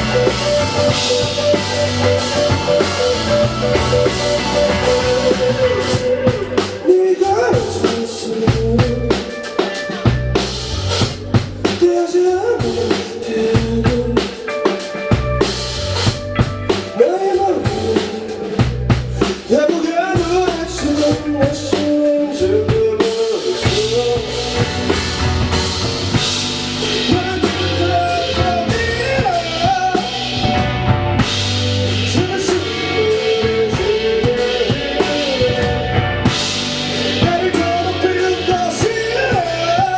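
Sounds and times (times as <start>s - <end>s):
drum kit hits: 0.0s - 6.9s, 23.5s - 39.9s
live rock band playing: 0.0s - 39.9s.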